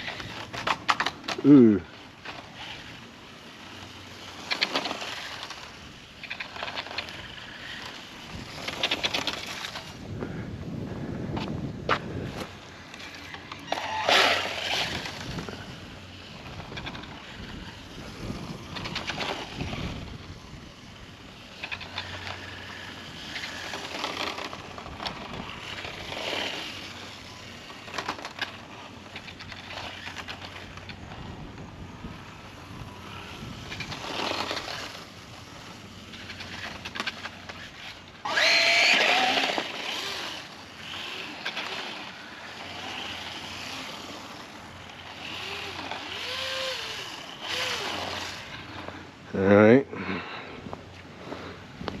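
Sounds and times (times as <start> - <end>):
tyre noise: 0.0 - 52.0
electric motor whining: 12.2 - 49.0.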